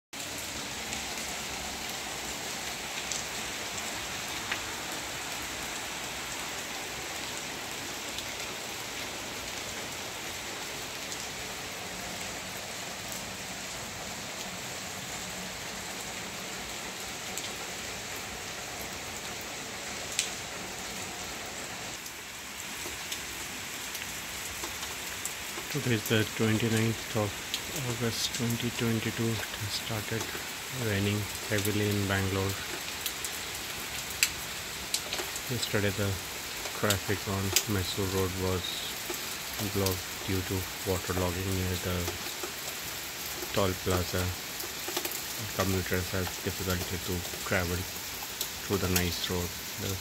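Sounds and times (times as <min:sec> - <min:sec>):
heavy rain falling: 0:00.2 - 0:50.0
sharp drip ticks: 0:44.4 - 0:49.1.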